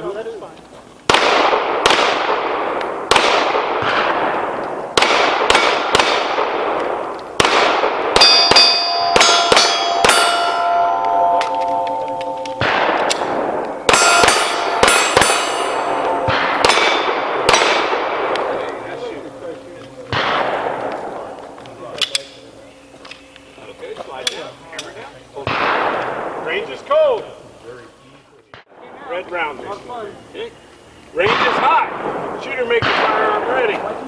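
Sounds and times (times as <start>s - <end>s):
pistol shots echoing: 1.1s - 23.4s, 25.4s - 26.8s, 31.2s - 34.0s
steel plates clanging: 8.2s - 17.1s.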